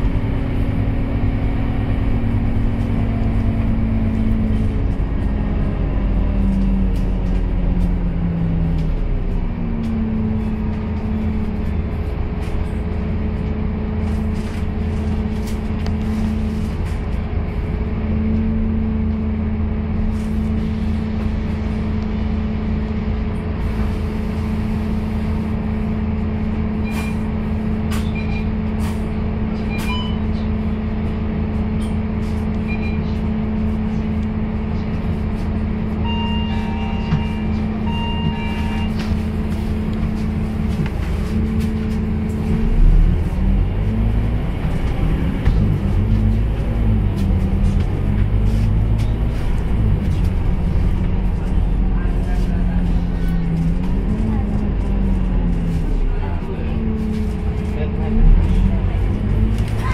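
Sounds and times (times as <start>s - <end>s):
bus engine droning: 0.0s - 59.9s
short electronic beeps: 32.6s - 33.2s, 36.0s - 39.0s.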